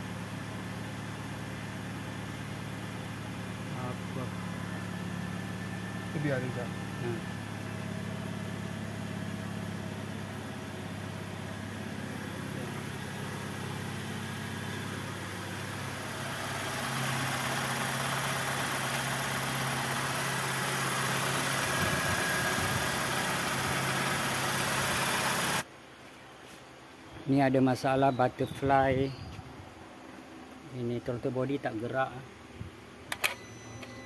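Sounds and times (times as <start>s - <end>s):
car engine idling: 0.0s - 25.7s.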